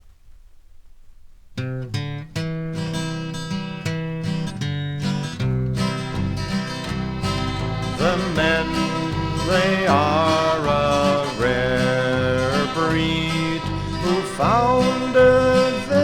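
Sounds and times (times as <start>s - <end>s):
acoustic guitar strumming chords: 1.6s - 16.0s.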